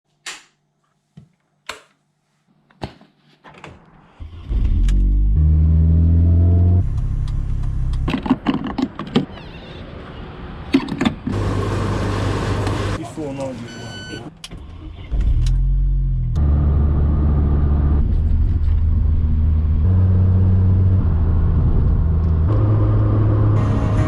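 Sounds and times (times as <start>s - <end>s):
engine starting and revving: 4.1s - 6.9s.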